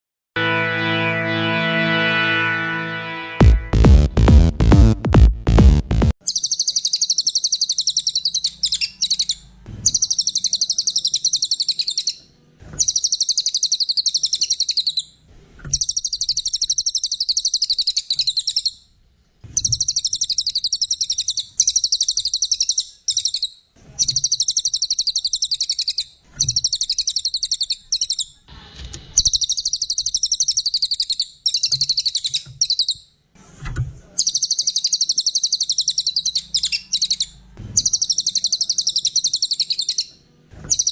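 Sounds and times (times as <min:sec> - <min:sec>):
songbird chattering trills: 0:06.2 - 0:12.2, 0:19.6 - 0:28.4, 0:34.2 - 0:40.1.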